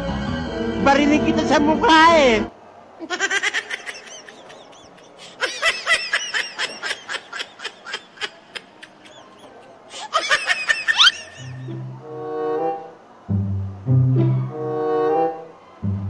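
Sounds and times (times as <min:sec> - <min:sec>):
high-pitched snickering laughter: 0:03.0 - 0:11.7.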